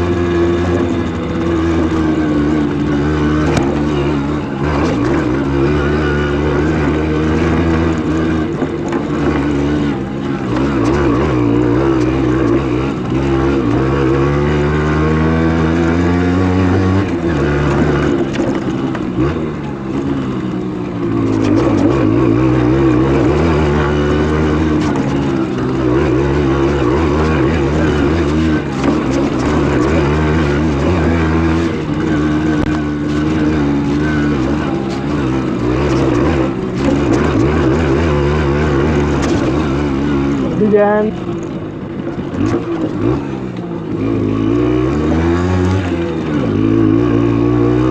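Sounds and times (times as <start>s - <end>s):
two-stroke engine running: 0.0s - 47.9s.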